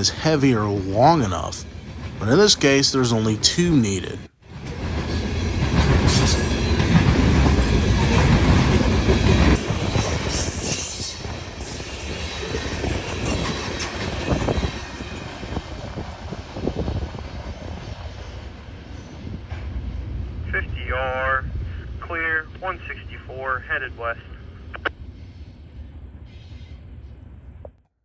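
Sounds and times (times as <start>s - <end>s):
freight train rumbling past: 0.0s - 27.6s
wheels squealing on rails: 4.5s - 17.8s.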